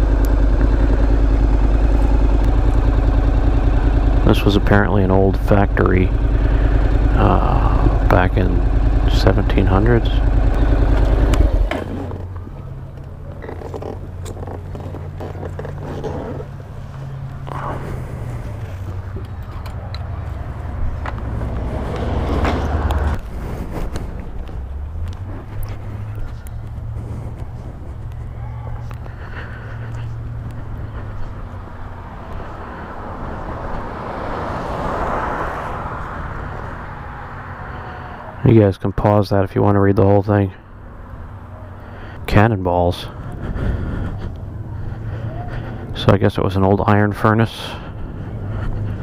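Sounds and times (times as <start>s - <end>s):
loud low rumble: 0.0s - 12.8s, 42.2s - 49.0s
motorcycle engine idling: 0.0s - 21.6s, 24.1s - 34.1s, 39.0s - 49.0s
vehicle passing by: 0.0s - 49.0s.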